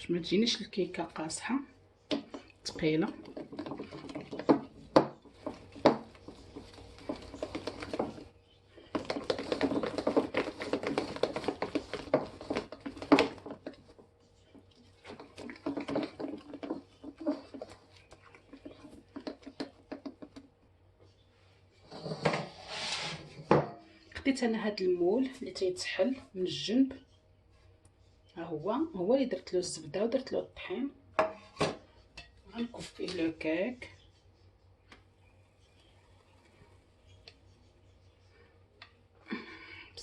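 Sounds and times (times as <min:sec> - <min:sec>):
utensil scraping a mixing bowl: 0:00.4 - 0:20.5, 0:21.1 - 0:23.6.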